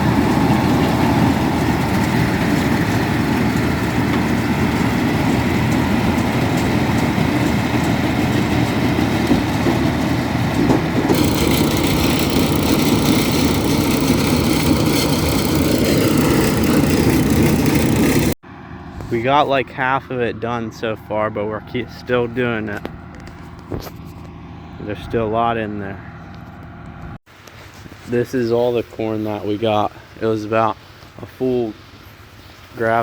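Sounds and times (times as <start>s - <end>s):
tractor engine running: 0.0s - 19.8s.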